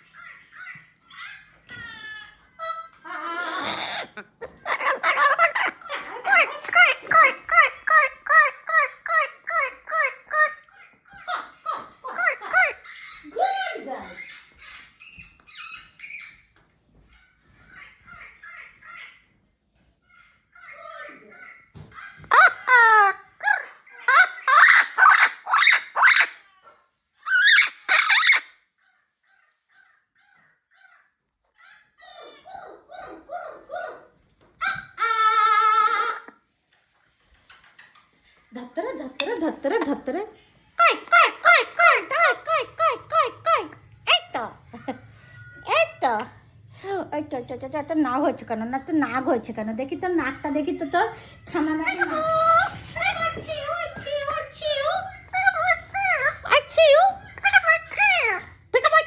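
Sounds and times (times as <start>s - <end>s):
harsh parrot squawk: 0.0s - 16.4s, 20.1s - 34.0s, 34.6s - 36.4s, 50.2s - 59.0s
parrot calling: 0.0s - 19.4s, 20.0s - 36.6s, 37.5s - 59.0s.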